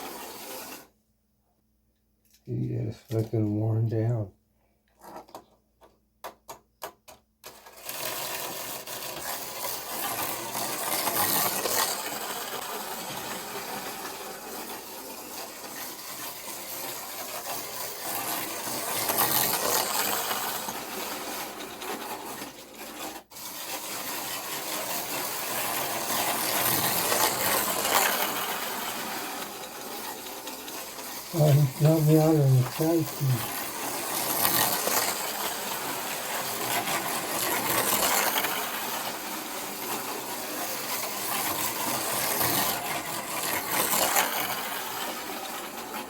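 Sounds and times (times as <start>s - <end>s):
slot car motor whirring: 0.0s - 0.9s, 7.5s - 46.0s.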